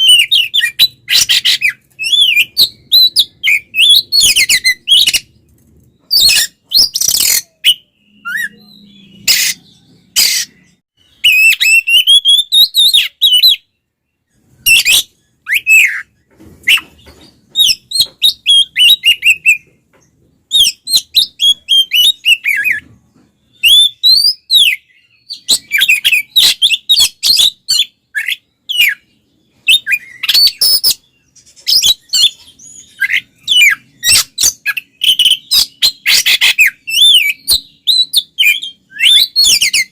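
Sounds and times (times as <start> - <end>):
bird singing whistled notes: 0.0 - 19.7, 20.5 - 22.8, 23.4 - 39.9.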